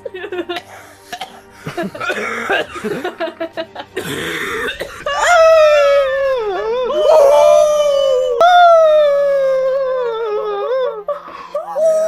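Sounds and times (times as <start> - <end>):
person coughing and spluttering: 0.6 - 3.2, 4.0 - 5.4
high-pitched wailing cry: 5.1 - 11.1.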